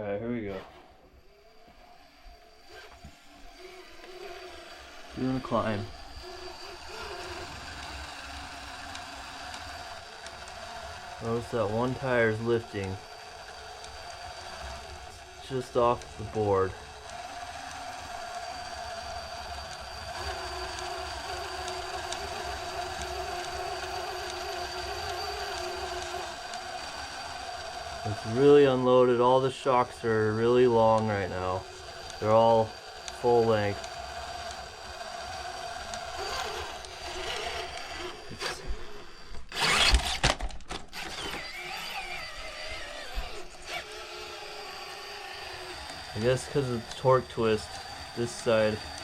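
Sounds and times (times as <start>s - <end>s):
electric motor whining: 0.0s - 49.0s
lower whine: 0.0s - 49.0s.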